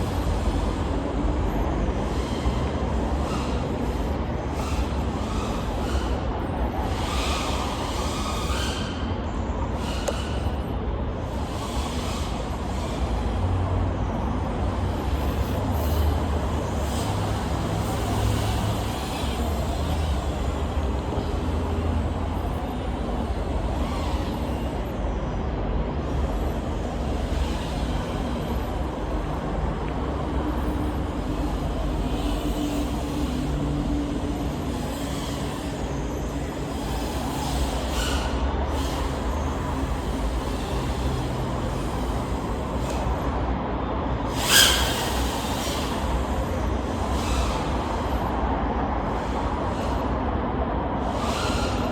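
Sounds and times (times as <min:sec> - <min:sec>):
quadcopter motors whining: 0:00.1 - 0:13.6, 0:14.8 - 0:43.6, 0:44.2 - 0:48.4, 0:49.0 - 0:51.9.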